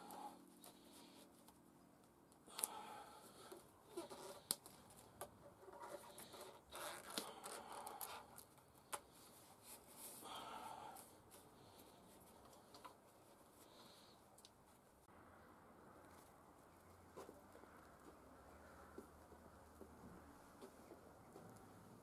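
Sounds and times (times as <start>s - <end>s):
rustling: 0.0s - 15.1s.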